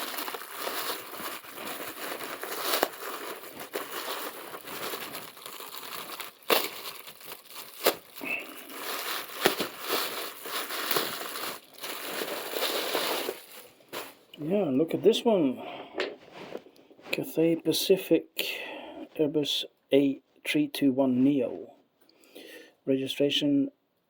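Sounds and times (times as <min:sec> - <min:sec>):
packaging crinkling and rustling: 0:00.0 - 0:14.4.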